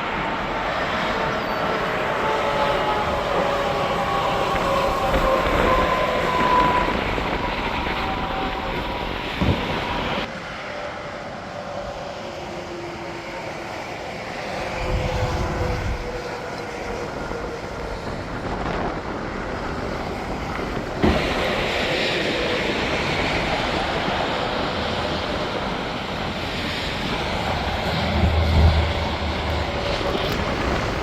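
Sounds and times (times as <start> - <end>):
trucks passing on highway: 22.2 - 31.0
low rumble: 27.1 - 31.0.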